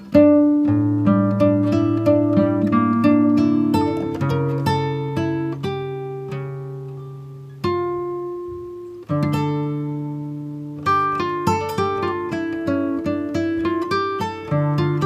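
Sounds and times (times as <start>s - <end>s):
acoustic guitar plucking chords: 0.0s - 15.0s.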